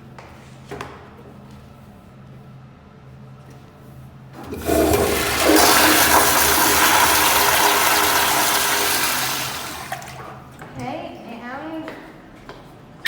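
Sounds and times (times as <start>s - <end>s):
toilet flushing water rush: 4.4s - 10.5s.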